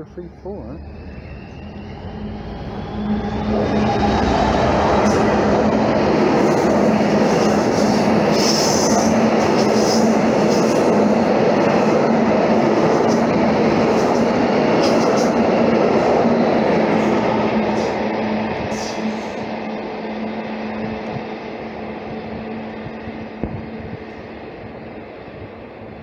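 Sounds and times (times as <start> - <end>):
constant low drone: 0.0 - 5.9
freight train rumbling past: 0.0 - 26.0
high wheel squeals: 0.6 - 4.6.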